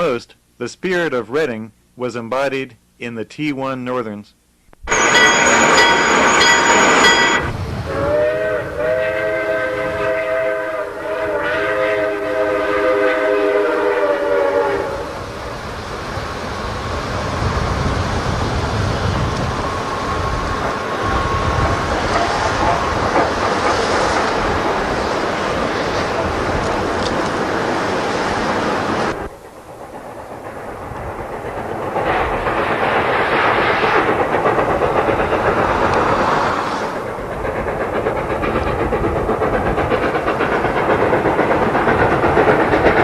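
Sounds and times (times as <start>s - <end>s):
long chime whistle: 4.9s - 7.5s
short high-pitched train whistle: 4.9s - 15.1s
train rumbling and clattering: 4.9s - 43.0s.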